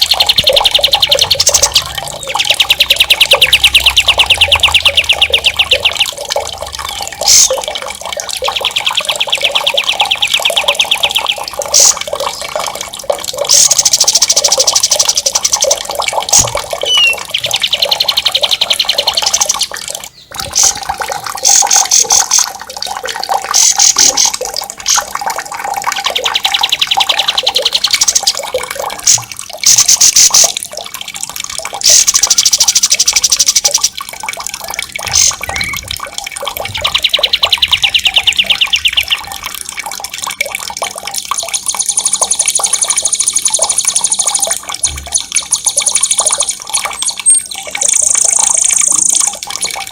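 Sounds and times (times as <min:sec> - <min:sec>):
songbirds trilling: 0:00.0 - 0:30.6, 0:34.8 - 0:39.5
flowing water: 0:00.0 - 0:49.9.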